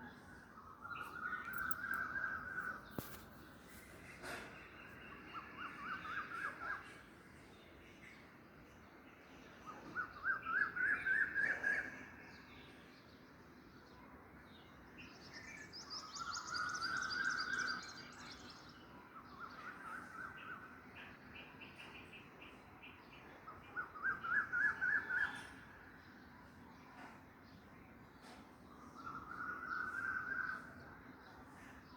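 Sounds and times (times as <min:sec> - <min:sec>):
thin bird twittering: 0:00.6 - 0:03.4.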